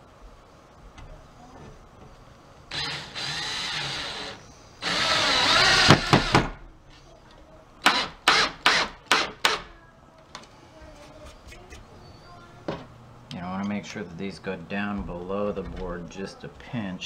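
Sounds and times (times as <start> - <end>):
power drill driving screws: 2.7 - 6.5, 7.8 - 9.7.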